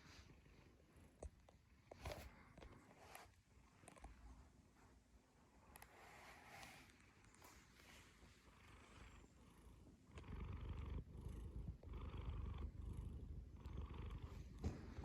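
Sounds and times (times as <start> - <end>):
cat purring: 5.4 - 15.0.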